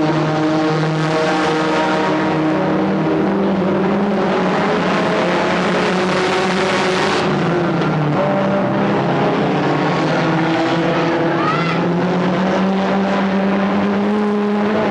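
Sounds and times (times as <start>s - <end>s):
stock car engines racing: 0.0s - 14.9s.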